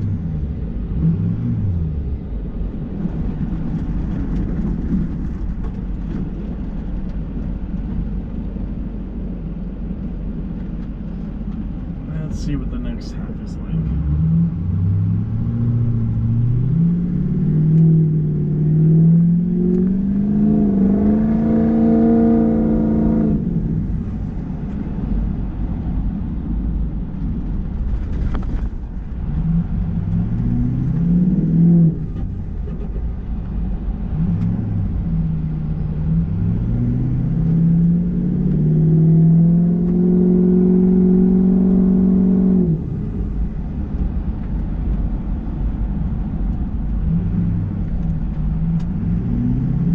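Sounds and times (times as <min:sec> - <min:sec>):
diesel engine revving: 0:12.0 - 0:25.2, 0:29.1 - 0:44.0, 0:47.0 - 0:49.9.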